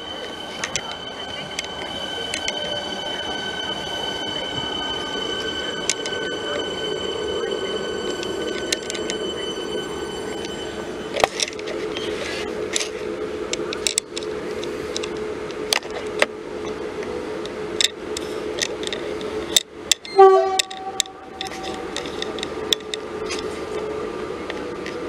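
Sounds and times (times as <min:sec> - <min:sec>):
electric train slowing to a stop: 0:00.0 - 0:25.0
clicks and knocks from train: 0:12.7 - 0:16.8.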